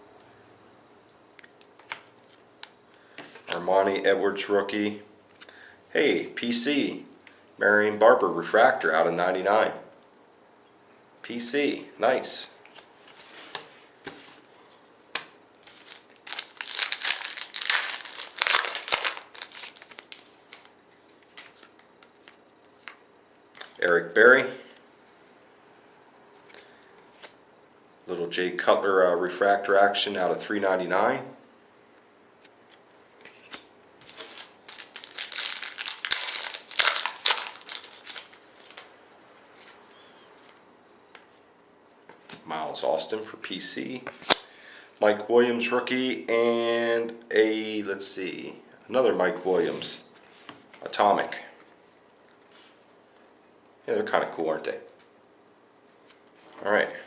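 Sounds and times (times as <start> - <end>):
foil wrapper crinkling: 15.6 - 23.0, 33.5 - 38.9.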